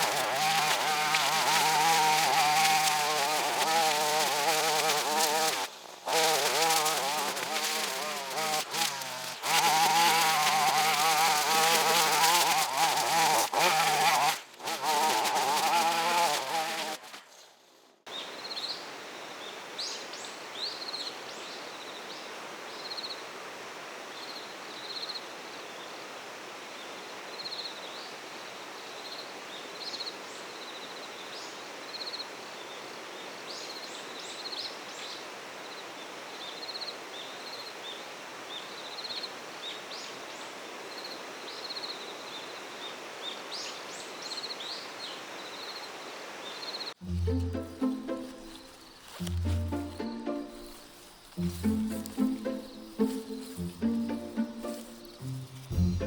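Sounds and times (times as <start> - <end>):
brushcutter engine running: 0.0 - 17.2, 47.0 - 56.0.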